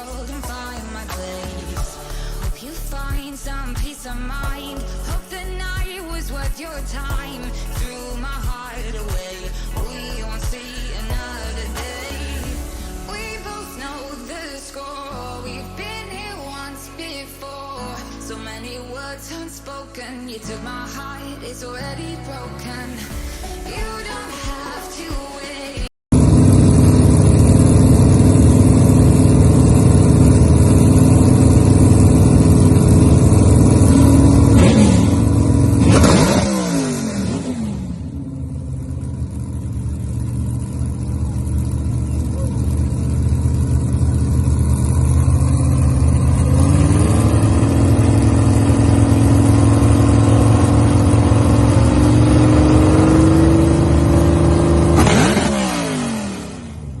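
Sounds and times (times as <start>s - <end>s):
car engine revving: 26.1s - 57.0s.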